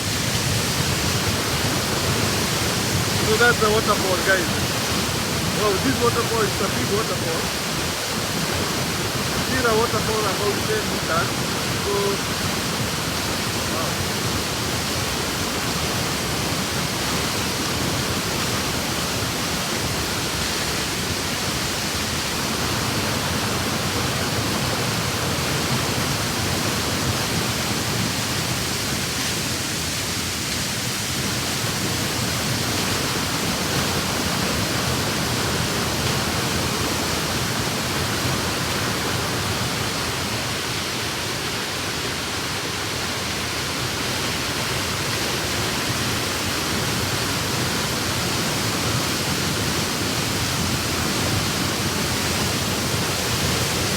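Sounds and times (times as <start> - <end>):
waterfall roaring: 0.0 - 53.9.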